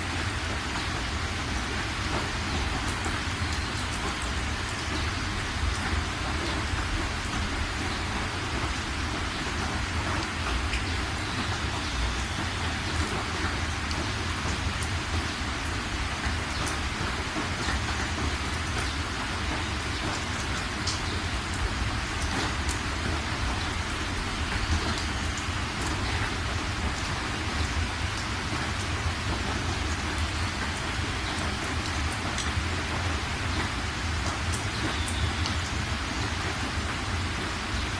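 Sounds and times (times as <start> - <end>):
raindrops ticking: 0.0 - 37.9
steady rain falling: 0.0 - 37.9.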